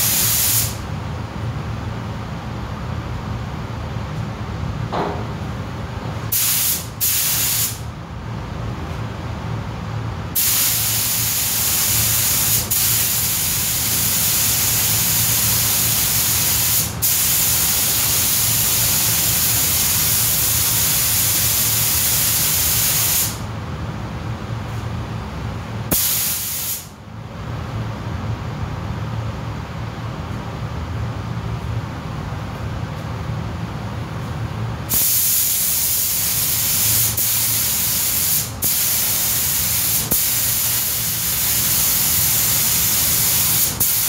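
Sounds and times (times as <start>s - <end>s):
paint spray gun hissing: 0.0s - 0.8s, 6.3s - 7.8s, 10.4s - 23.4s, 25.9s - 26.9s, 34.9s - 44.0s.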